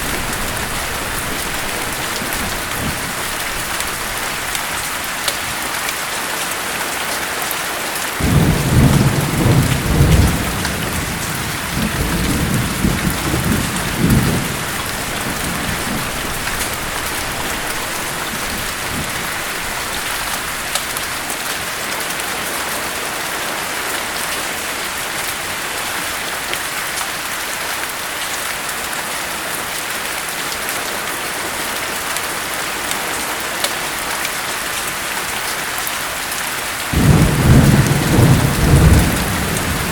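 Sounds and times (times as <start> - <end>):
thunder rumbling: 0.0 - 4.9, 8.2 - 21.2, 36.8 - 39.9
heavy rain: 0.0 - 39.9.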